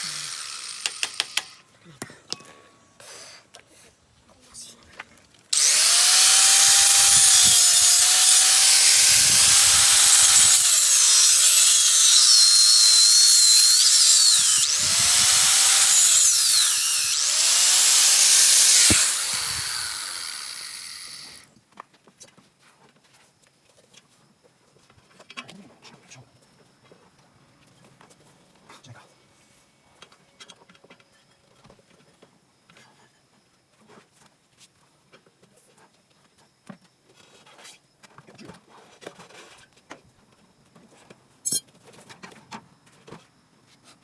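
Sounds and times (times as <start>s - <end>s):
electric power tool motor whine: 0.0s - 1.6s, 5.6s - 21.5s.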